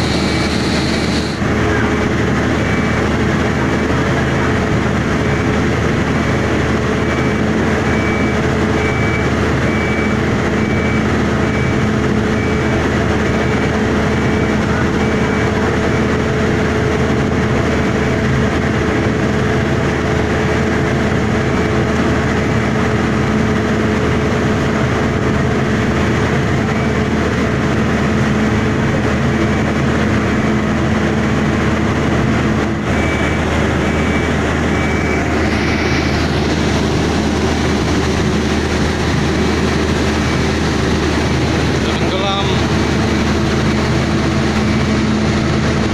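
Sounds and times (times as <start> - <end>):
high warning beep: 0.0 - 1.4, 2.6 - 3.2, 7.0 - 16.2, 32.8 - 37.1
heavy machine engine drone: 0.0 - 45.9.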